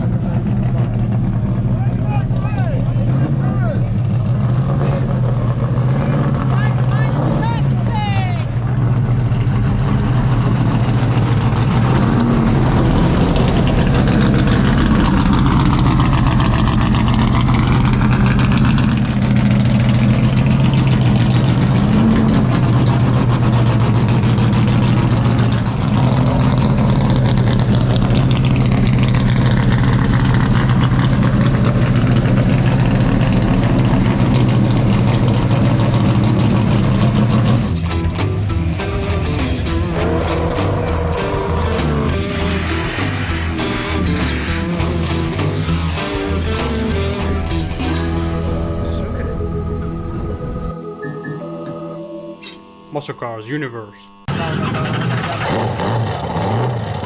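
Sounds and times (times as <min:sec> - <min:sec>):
race car engine idling: 0:00.0 - 0:50.7, 0:54.1 - 0:57.0.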